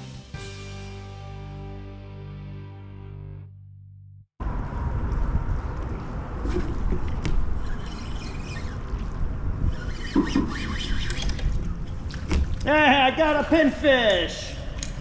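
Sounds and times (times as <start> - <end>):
wind: 4.4 - 15.0
water around a kayak: 5.5 - 13.4
faint ticks and squeaks: 7.6 - 11.5.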